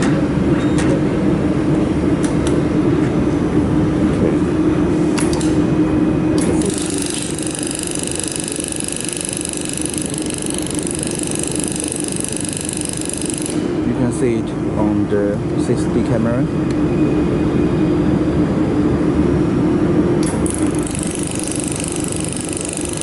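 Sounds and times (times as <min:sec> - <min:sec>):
dust collection fan humming: 0:00.0 - 0:23.0
laser welder buzzing: 0:06.3 - 0:13.9, 0:20.2 - 0:23.0.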